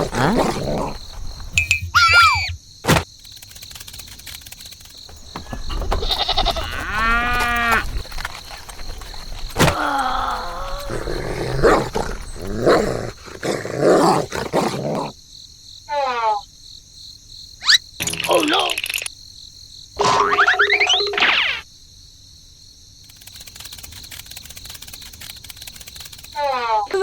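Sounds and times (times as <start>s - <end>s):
short animal-like calls: 1.6s - 2.6s
steady high tone: 1.6s - 2.6s.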